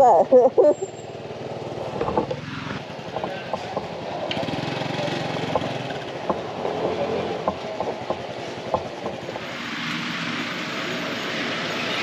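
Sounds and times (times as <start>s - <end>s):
road noise: 0.0s - 12.0s
motorbike engine running: 0.8s - 9.5s.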